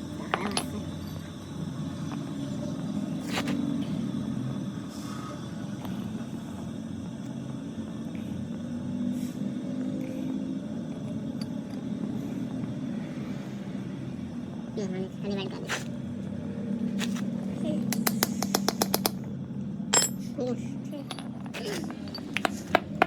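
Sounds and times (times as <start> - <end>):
machinery rumbling: 0.0 - 18.2.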